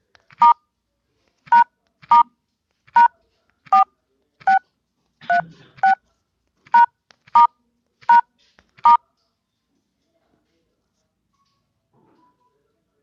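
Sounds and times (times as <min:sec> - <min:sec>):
phone keypad touch tones: 0:06.7 - 0:07.5.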